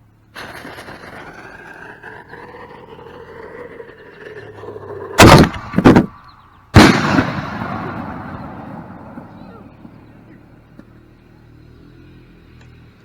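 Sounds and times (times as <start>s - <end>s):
loud sharp bangs: 5.2s - 10.7s.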